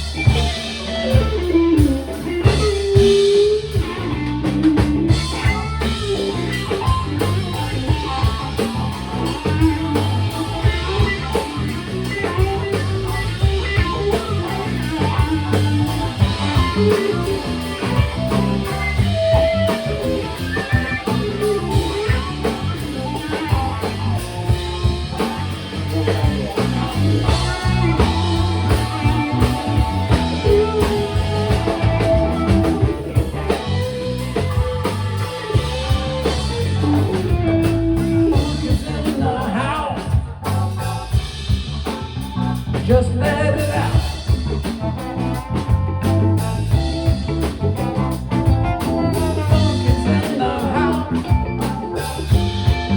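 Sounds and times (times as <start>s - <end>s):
funk band playing: 0.0s - 52.9s
person singing: 38.2s - 40.5s, 42.9s - 44.4s, 49.4s - 52.2s.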